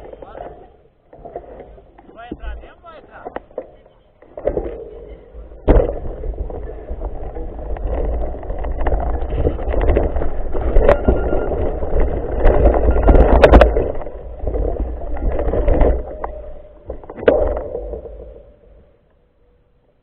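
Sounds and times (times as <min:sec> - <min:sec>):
bike rolling over dirt trail: 0:00.0 - 0:19.3
wind buffeting microphone: 0:04.8 - 0:17.6
bike rattling and clicking: 0:05.6 - 0:19.1.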